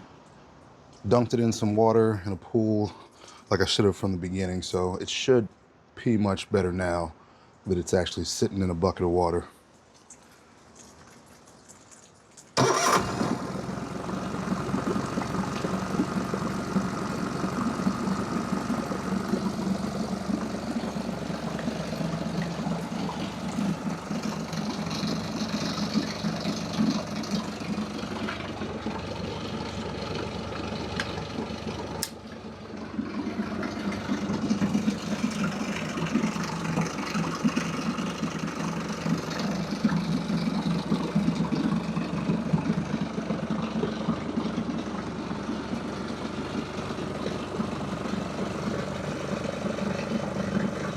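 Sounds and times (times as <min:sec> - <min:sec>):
outboard motor running: 0:12.6 - 0:50.9.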